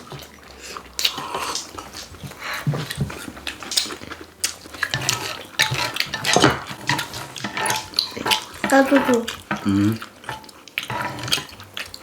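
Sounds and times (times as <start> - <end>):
people chewing and slurping: 0.0 - 12.0
cutlery clicking: 3.6 - 9.7.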